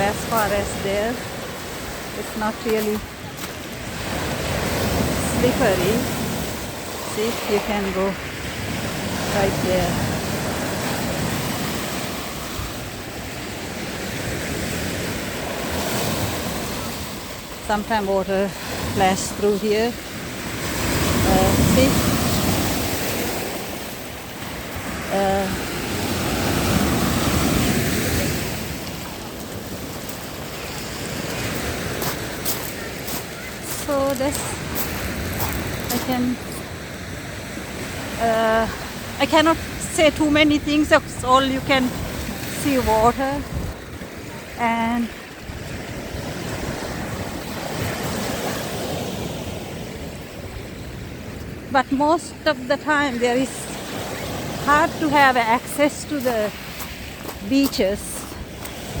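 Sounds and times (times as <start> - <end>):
waves washing onto beach: 0.0 - 59.0
wind buffeting microphone: 26.0 - 48.7.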